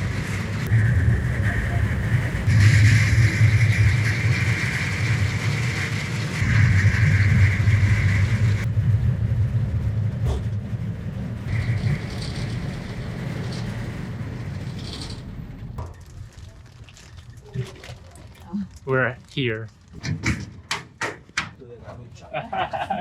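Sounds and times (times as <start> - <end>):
high-pitched whine: 0.0 - 10.6, 11.4 - 15.8
cable car rumbling: 0.0 - 20.0, 22.0 - 23.0.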